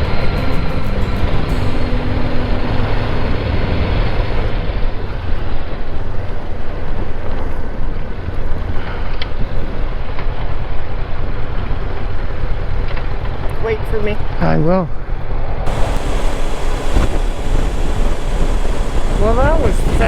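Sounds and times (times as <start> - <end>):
motorcycle engine and tyre noise: 15.7 - 20.0
wind buffeting microphone: 15.7 - 20.0.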